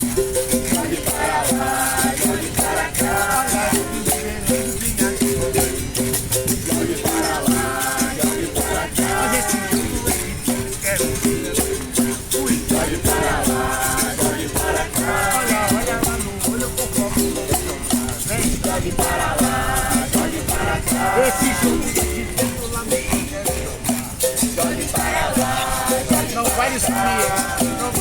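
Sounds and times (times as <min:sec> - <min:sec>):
berimbaus playing rhythmically: 0:00.0 - 0:28.0
hand percussion: 0:00.0 - 0:28.0
shaken rattles: 0:00.0 - 0:28.0.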